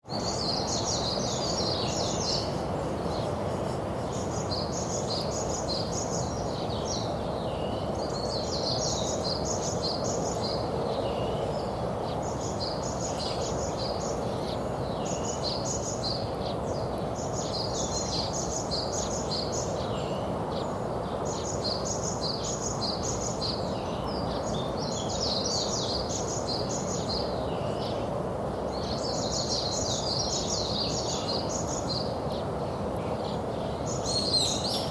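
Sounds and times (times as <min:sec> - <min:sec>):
songbird singing high phrase: 0:28.8 - 0:34.9.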